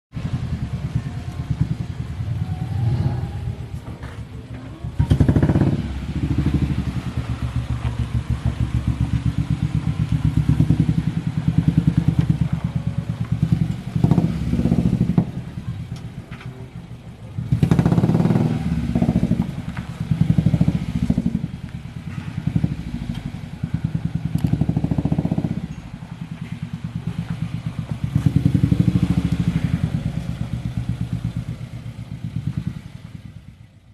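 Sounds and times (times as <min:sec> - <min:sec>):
car engine idling and revving: 0:00.1 - 0:33.9.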